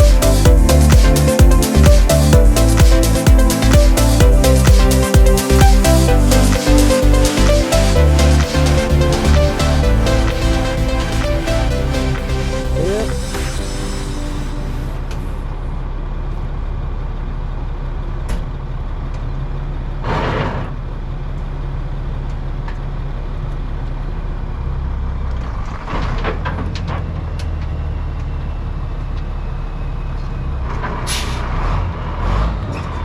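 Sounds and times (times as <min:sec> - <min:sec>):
diesel truck engine running: 0:00.0 - 0:20.0.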